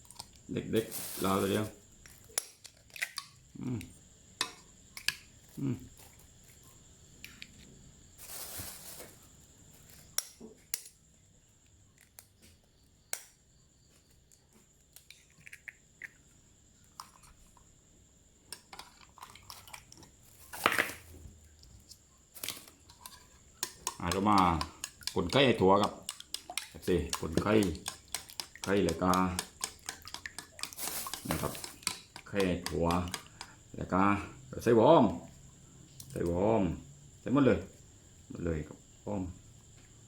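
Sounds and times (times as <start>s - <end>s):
utensils and dishes clinking: 27.1s - 33.3s.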